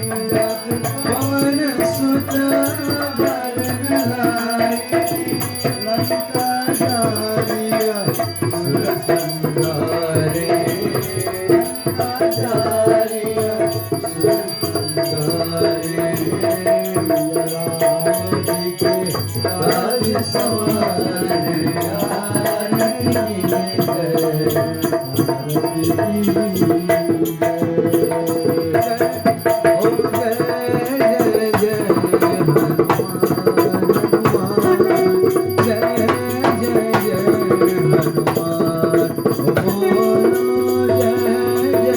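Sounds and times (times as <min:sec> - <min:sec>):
hand drums: 0:00.0 - 0:41.9
rattling percussion: 0:00.0 - 0:41.9
voices singing devotional song: 0:00.0 - 0:41.9.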